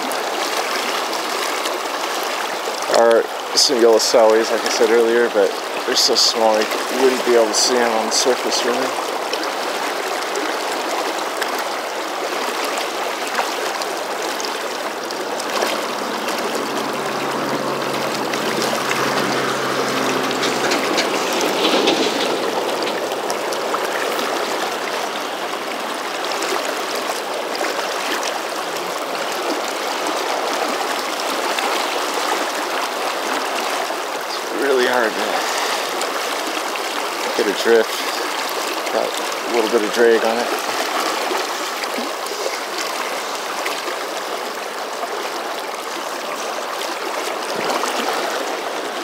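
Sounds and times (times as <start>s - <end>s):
river current rushing: 0.0s - 49.0s.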